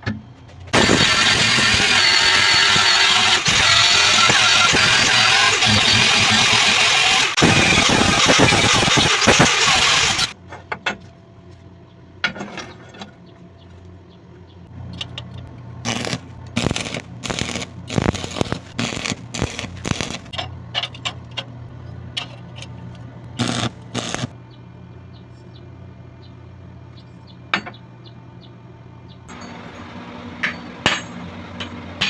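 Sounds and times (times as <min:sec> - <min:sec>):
power tool running: 0:00.8 - 0:10.4, 0:15.8 - 0:20.3, 0:23.3 - 0:24.4, 0:29.3 - 0:32.0
metal scraping on metal: 0:15.9 - 0:24.4.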